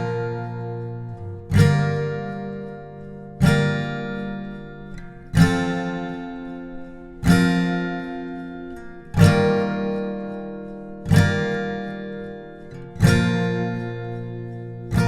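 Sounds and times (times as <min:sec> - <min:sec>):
acoustic guitar chords strummed: 0:00.0 - 0:15.0.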